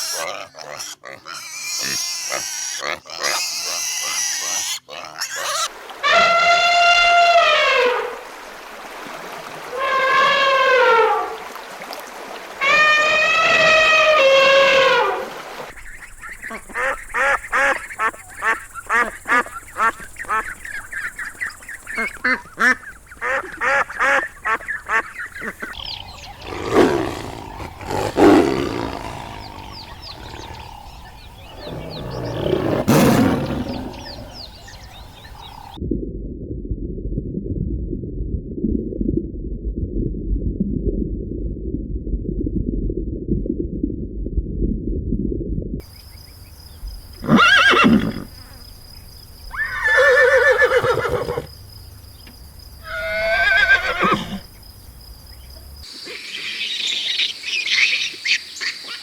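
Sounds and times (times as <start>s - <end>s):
ducks quacking: 0.0s - 7.2s, 16.2s - 35.8s.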